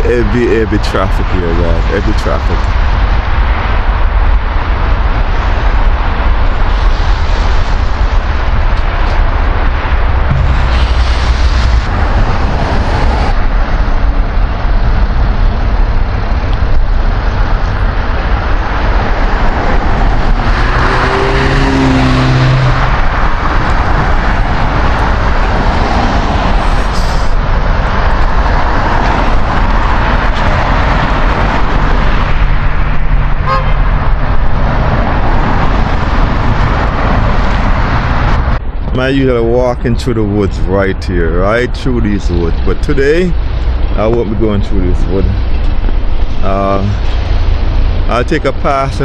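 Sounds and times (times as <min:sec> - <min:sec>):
heavy highway traffic: 0:00.0 - 0:49.0
vehicle engine passing: 0:10.1 - 0:14.2, 0:18.1 - 0:38.3.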